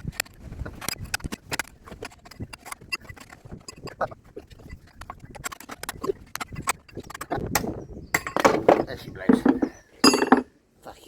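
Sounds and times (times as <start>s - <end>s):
hand tools clicking on metal: 4.8s - 10.5s.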